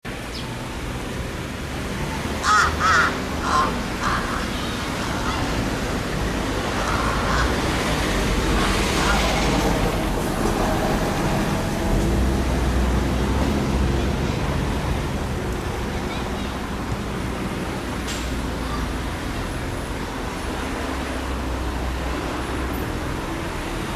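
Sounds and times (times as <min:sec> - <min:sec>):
crow cawing: 0:02.4 - 0:09.4.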